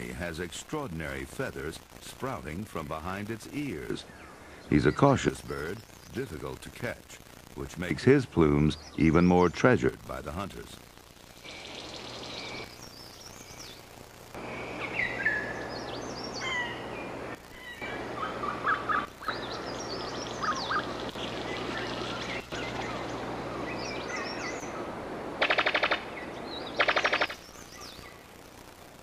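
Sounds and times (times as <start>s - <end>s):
forest hiss: 0.0s - 29.0s
birds whistling and chirping: 14.5s - 24.8s, 25.4s - 28.2s
bird rapid rattling call: 25.4s - 28.3s.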